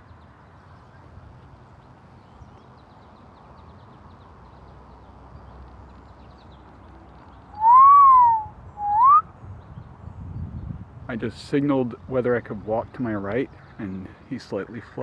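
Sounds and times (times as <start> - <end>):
faint outdoor hiss: 0.0 - 15.0
person whistling: 7.6 - 9.3.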